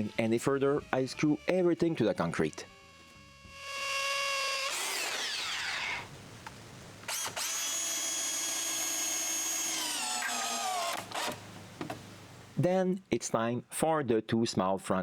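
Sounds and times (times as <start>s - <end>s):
power drill motor whine: 0.0s - 6.1s, 7.1s - 11.5s
drill click: 7.1s - 12.0s.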